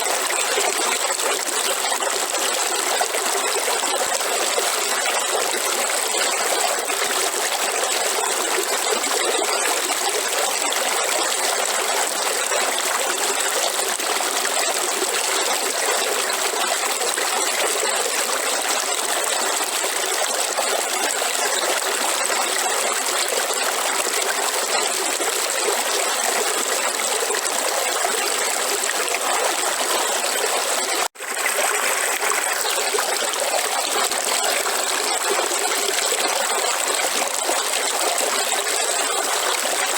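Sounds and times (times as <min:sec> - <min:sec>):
river water flowing: 0:24.2 - 0:39.9.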